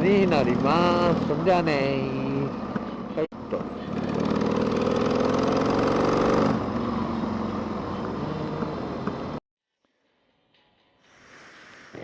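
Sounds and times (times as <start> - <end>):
motorcycle engine under throttle: 3.9 - 6.9.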